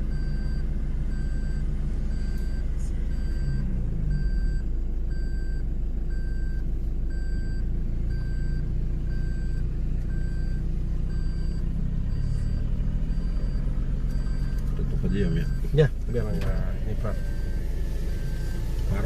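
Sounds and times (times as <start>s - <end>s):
vehicle engine running: 0.0s - 19.0s
electronic warning beeps: 0.1s - 19.0s.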